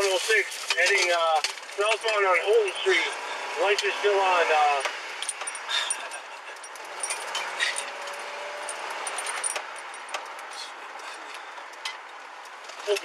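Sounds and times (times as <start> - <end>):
light metallic jingling: 4.6 - 13.0.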